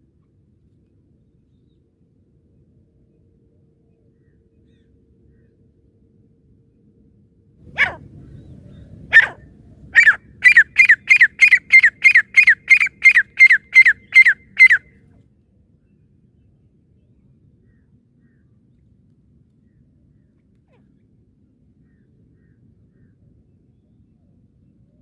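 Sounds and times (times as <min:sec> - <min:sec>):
francolin calling: 0:10.0 - 0:14.9.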